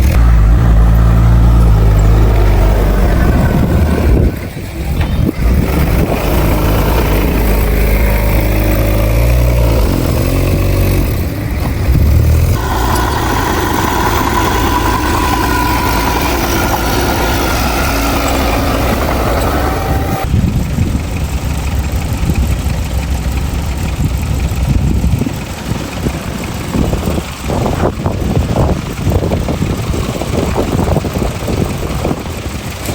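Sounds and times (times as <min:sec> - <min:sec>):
high whining tone: 0:00.0 - 0:25.2
diesel machinery engine running: 0:00.0 - 0:32.9.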